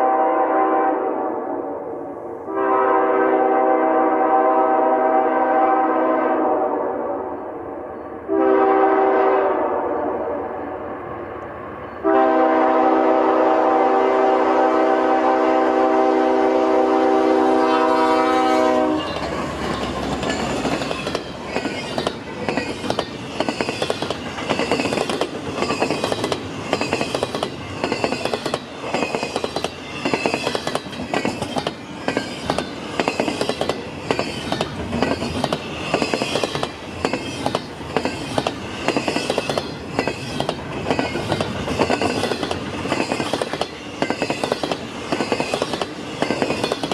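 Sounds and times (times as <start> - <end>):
locomotive air horn: 0.0 - 7.3, 8.3 - 10.6, 12.0 - 19.3
train wheels clicking over rail joints: 18.8 - 46.9.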